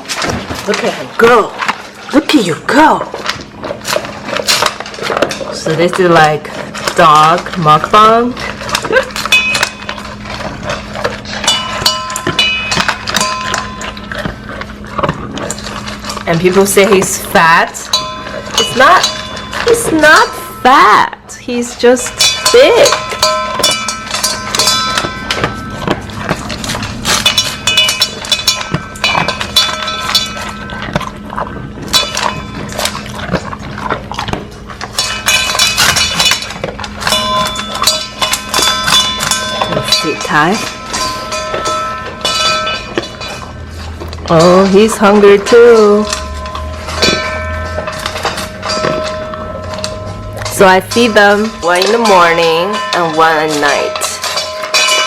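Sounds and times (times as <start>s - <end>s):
dog crunching dry food: 0.0s - 55.0s.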